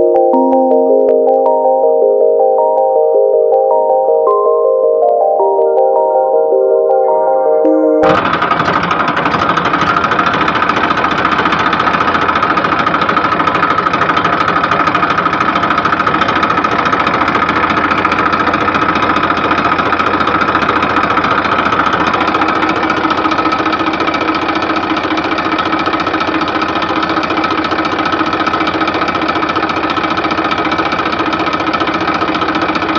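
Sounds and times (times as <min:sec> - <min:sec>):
tractor engine knocking: 0:08.0 - 0:32.9.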